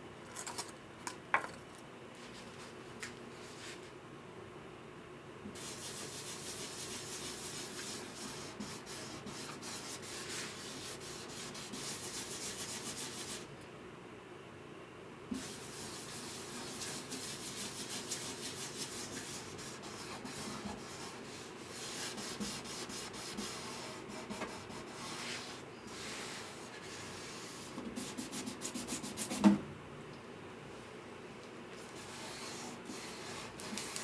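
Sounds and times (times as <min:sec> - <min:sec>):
hand sanding wood: 0:05.6 - 0:13.4, 0:15.4 - 0:29.4, 0:32.0 - 0:34.0.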